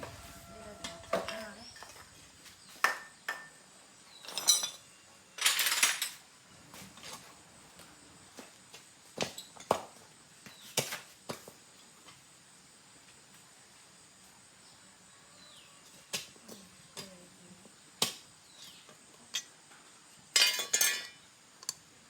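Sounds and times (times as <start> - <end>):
metal tools clinking: 4.2 - 6.2, 20.4 - 21.2.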